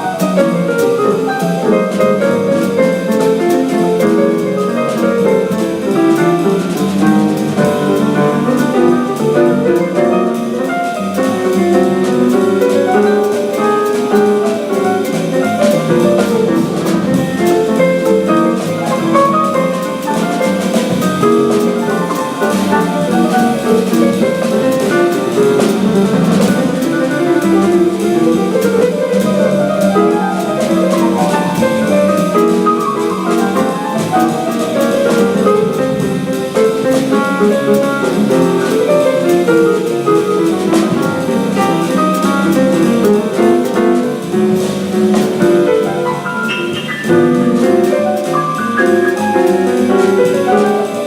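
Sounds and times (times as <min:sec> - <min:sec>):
piano lines: 0:00.0 - 0:51.0.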